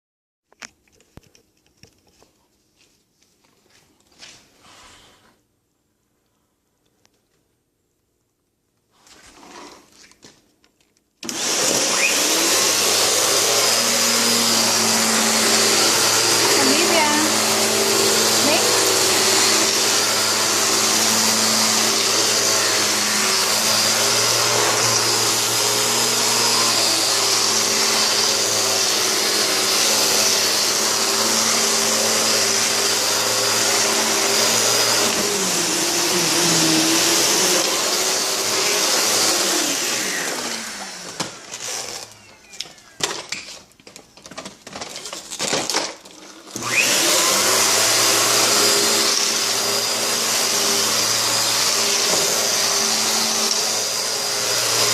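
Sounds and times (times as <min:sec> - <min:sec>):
vacuum cleaner running: 0:11.2 - 0:42.4, 0:45.4 - 0:54.9.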